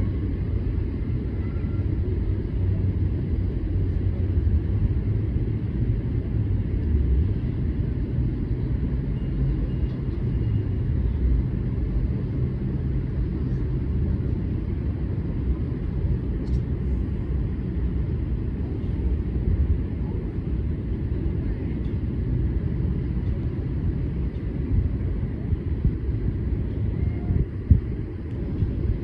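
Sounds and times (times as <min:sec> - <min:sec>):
low rumble: 0:00.0 - 0:29.0
faint high whistle: 0:01.4 - 0:01.8.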